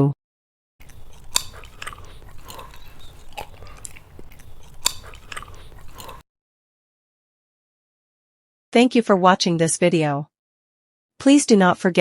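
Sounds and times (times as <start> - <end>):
person chewing food: 0.8 - 6.2.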